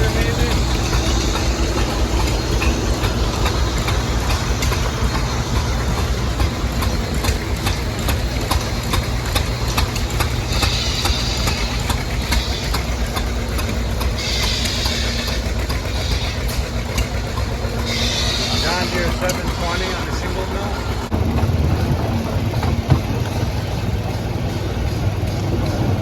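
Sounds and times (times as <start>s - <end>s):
vintage engines droning: 0.0s - 26.0s
sharp ticks and pops: 0.5s - 17.6s.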